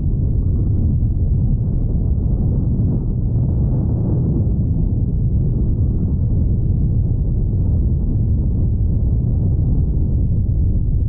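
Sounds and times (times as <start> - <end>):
loud low rumbling: 0.0 - 11.0.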